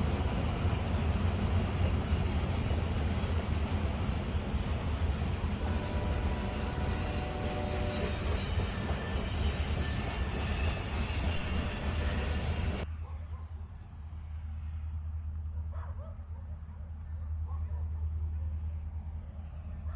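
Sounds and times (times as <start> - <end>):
freight train wheels rumbling: 0.0 - 13.0
high wheel squeals: 6.5 - 12.8.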